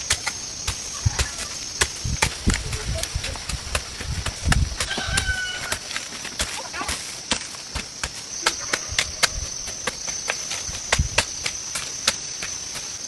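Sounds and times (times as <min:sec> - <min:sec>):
crickets trilling: 0:00.0 - 0:13.0
sharp irregular knocks: 0:03.5 - 0:12.9.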